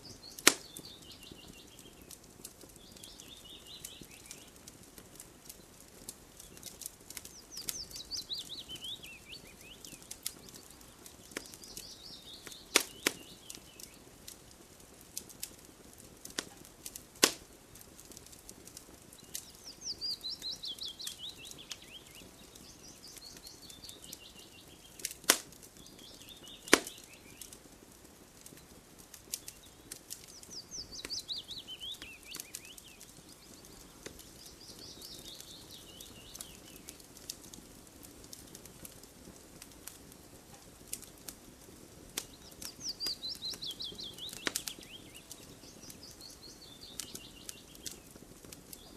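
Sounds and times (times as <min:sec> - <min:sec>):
songbird chirping: 0:00.0 - 0:14.6, 0:18.2 - 0:27.6, 0:28.4 - 0:37.5, 0:42.1 - 0:48.9
wood fire crackling: 0:00.0 - 0:48.9
loud sharp pops: 0:00.3 - 0:02.7, 0:09.8 - 0:14.0, 0:16.2 - 0:19.5, 0:24.9 - 0:27.5, 0:42.1 - 0:46.0.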